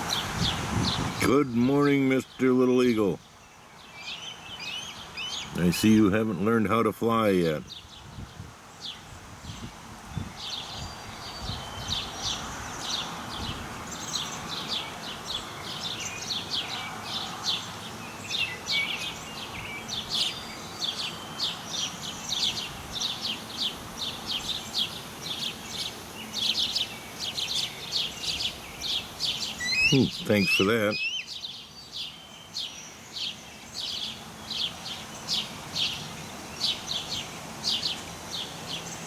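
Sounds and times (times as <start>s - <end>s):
background hiss: 0.0s - 39.0s
birds chirping: 0.0s - 39.0s.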